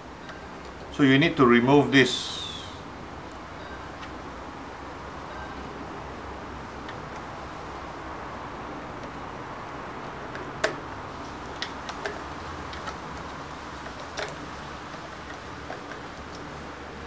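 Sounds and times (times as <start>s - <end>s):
steady background hiss: 0.0s - 17.0s
plastic parts clicking and tapping: 11.5s - 16.5s.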